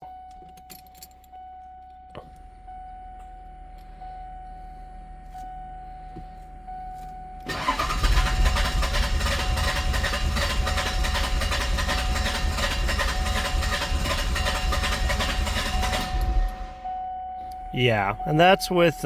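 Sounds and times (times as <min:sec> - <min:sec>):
starter motor cranking engine: 0:07.4 - 0:16.8.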